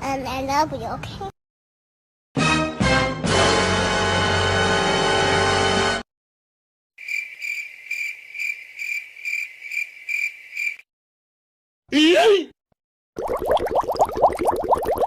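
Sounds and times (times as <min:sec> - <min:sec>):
background music: 0:02.4 - 0:06.0.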